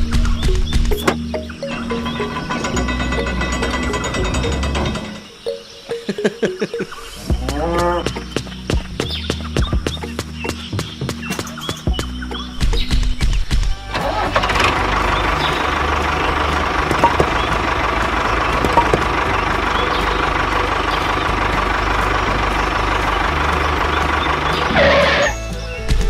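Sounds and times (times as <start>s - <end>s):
engine running low rumble: 0.0s - 5.4s, 12.0s - 26.0s.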